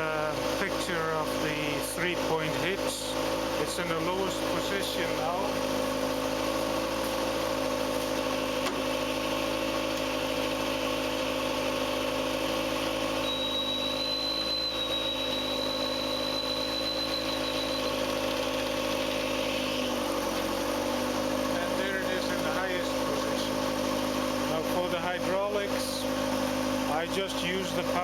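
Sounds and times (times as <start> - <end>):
tractor engine idling: 0.0 - 28.0
thin high hydraulic whine: 13.1 - 20.1.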